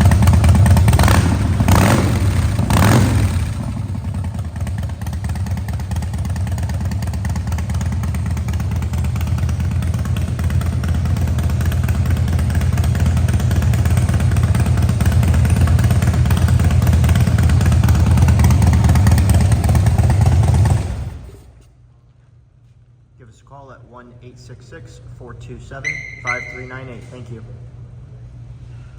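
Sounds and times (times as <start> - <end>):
motorcycle engine running: 0.0 - 21.5.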